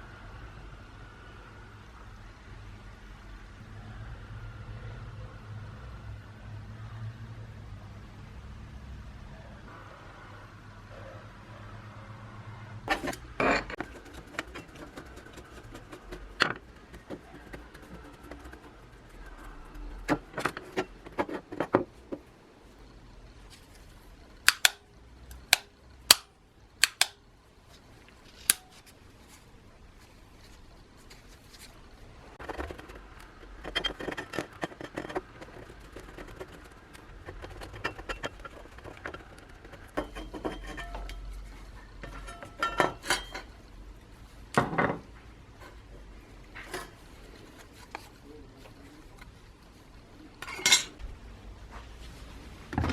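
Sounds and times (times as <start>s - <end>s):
metal parts and tools clinking: 12.9s - 17.2s, 37.2s - 43.6s, 50.4s - 51.0s
sharp clicks: 24.5s - 27.2s.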